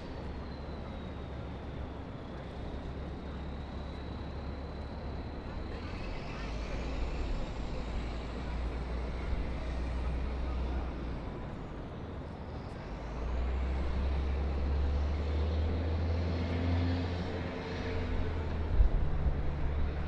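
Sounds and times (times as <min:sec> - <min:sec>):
low rumble of traffic: 0:00.0 - 0:20.0.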